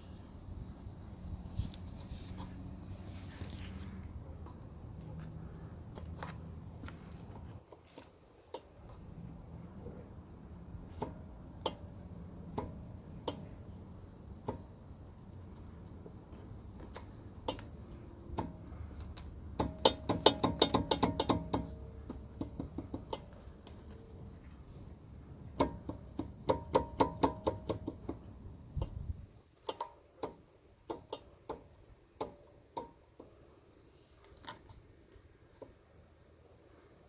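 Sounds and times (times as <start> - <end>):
brake caliper knocking: 10.9 - 24.0, 25.4 - 33.4.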